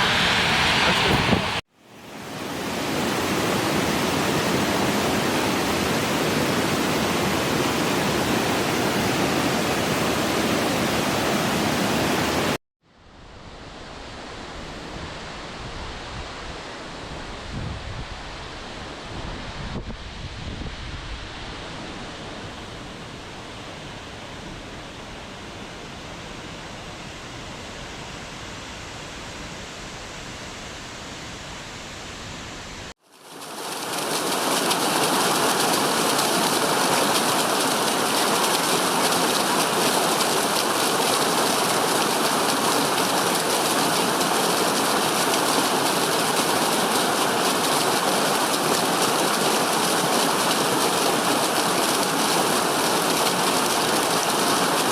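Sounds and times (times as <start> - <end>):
waterfall rushing: 0.0 - 1.6, 33.2 - 54.9.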